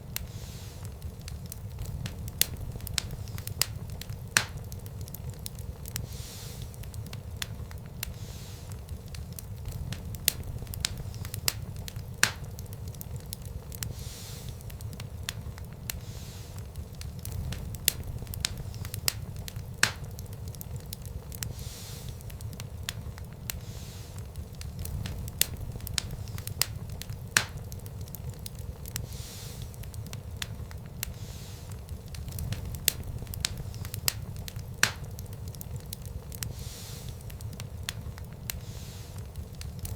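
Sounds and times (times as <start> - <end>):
low fire rumble: 0.0 - 39.9
soft fire hiss: 0.0 - 39.9
wood fire crackling and popping: 0.0 - 39.9.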